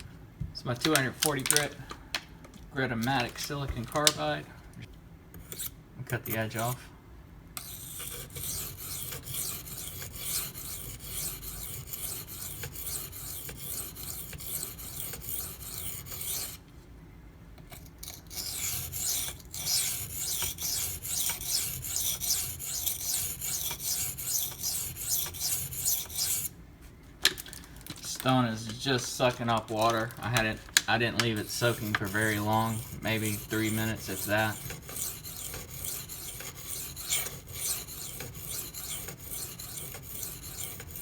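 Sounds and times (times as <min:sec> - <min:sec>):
knife scraping on whetstone: 0:05.4 - 0:06.8, 0:07.6 - 0:16.6, 0:17.7 - 0:26.6, 0:28.1 - 0:41.0.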